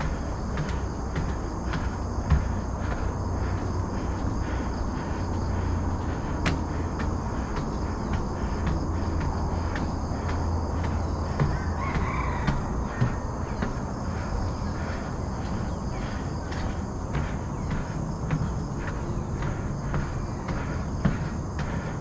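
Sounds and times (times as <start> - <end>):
runner's footfalls: 0.0 - 22.0
wind rumble: 0.0 - 22.0.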